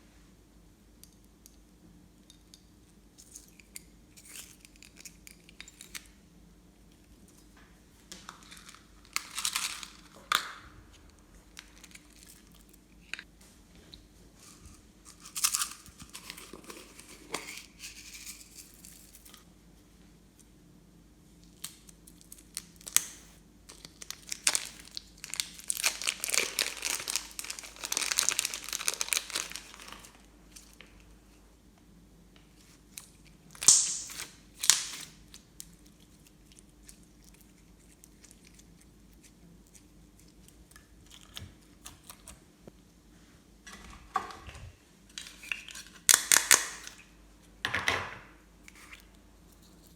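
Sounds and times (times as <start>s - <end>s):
slime crackling and crinkling: 8.2s - 13.1s, 21.5s - 31.0s.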